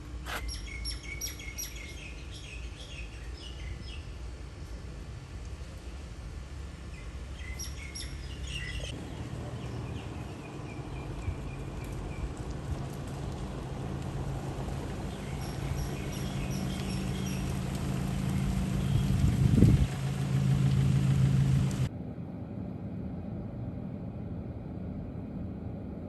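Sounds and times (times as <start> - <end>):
outdoor background noise: 0.0 - 26.0
small birds chirping: 0.3 - 4.1, 7.0 - 12.3, 15.1 - 19.3
low engine hum: 4.9 - 26.0.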